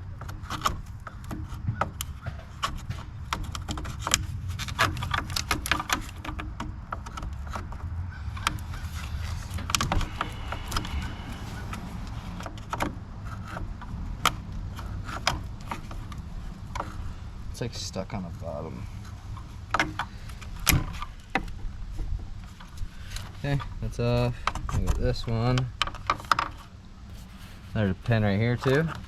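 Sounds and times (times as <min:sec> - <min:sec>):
steady low hum: 0:00.0 - 0:29.0
plastic part clicking and rattling: 0:00.1 - 0:17.1, 0:19.0 - 0:26.7.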